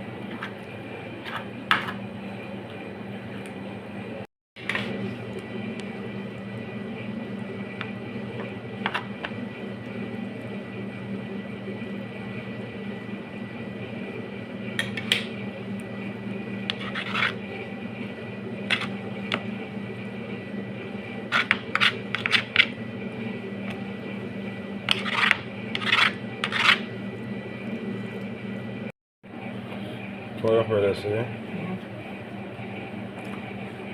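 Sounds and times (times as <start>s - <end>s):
steady hum: 0.0s - 33.9s
utensils scraping and clinking dishes: 16.7s - 17.4s, 18.7s - 19.0s, 21.3s - 22.8s, 24.9s - 26.9s.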